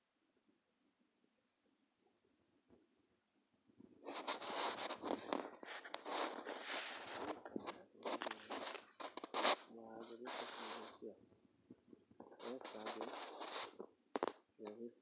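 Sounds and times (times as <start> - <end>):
loud rough rustling with crackles: 4.0 - 11.1, 12.3 - 14.4.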